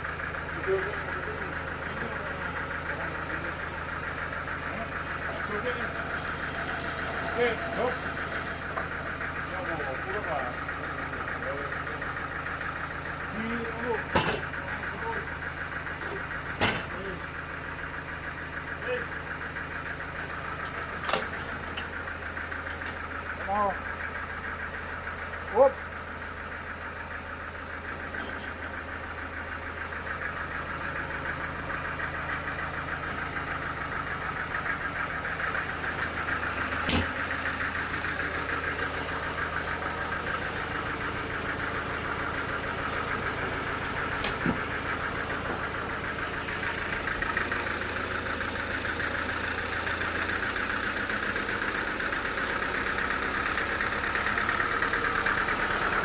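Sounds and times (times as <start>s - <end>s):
engine-driven machine running: 0.0s - 56.0s.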